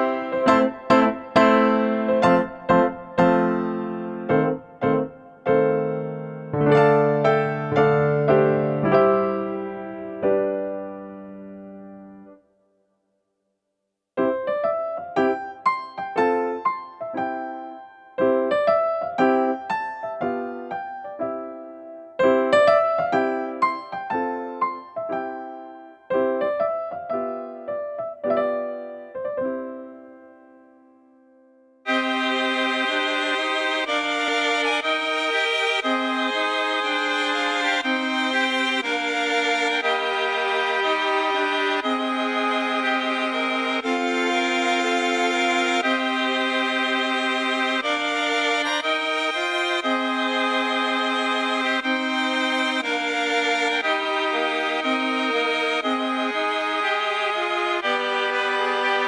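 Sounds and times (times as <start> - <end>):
slow gentle piano music: 0.0 - 12.5, 14.2 - 32.4.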